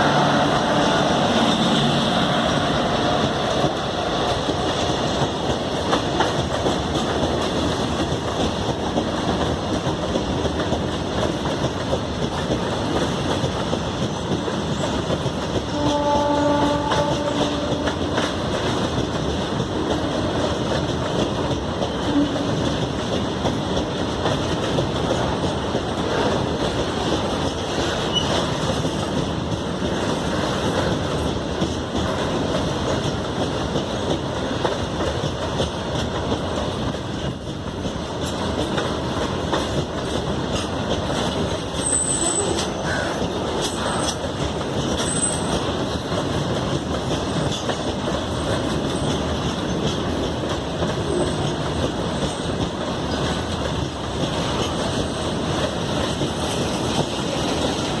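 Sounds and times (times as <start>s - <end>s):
train wheel-on-rail noise: 0.0s - 58.0s
locomotive horn blast: 15.7s - 18.1s.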